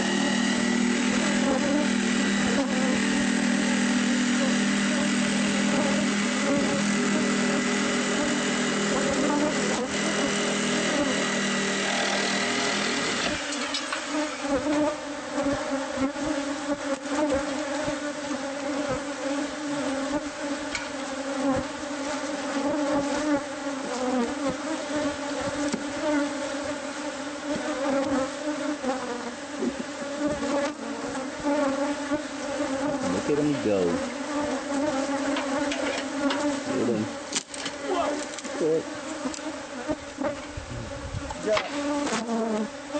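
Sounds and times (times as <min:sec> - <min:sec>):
steady machine hum: 0:00.0 - 0:14.6
bees buzzing loudly: 0:00.0 - 0:42.9.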